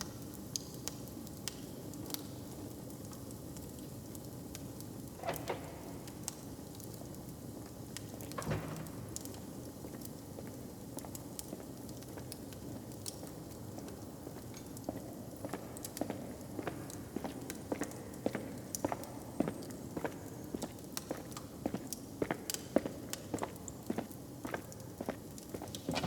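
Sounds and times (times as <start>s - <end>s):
fire popping: 25.8s - 26.0s.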